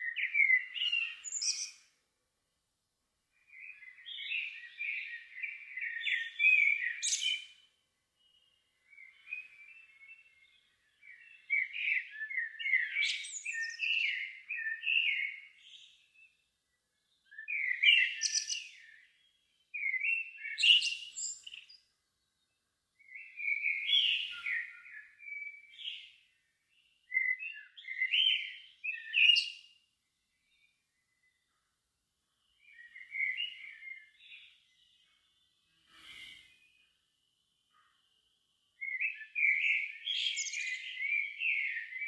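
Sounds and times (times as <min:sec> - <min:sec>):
songbird warbling: 0:38.8 - 0:42.0.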